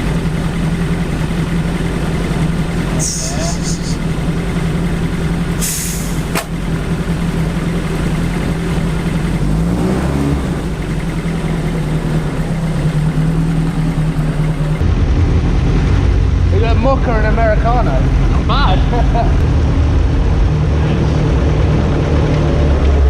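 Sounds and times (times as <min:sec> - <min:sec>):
car engine idling: 0:00.0 - 0:23.0
engine rev: 0:00.0 - 0:23.0
short hiss: 0:05.6 - 0:06.3.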